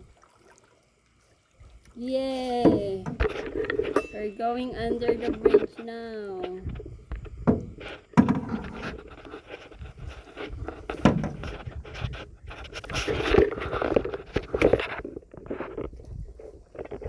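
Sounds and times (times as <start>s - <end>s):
paddles knocking against hull: 2.6s - 16.1s.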